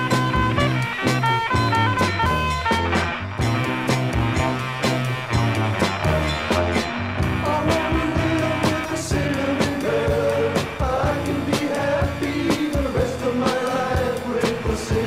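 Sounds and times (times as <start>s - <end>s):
rock band music from vinyl: 0.0s - 15.0s
person singing: 7.4s - 15.0s.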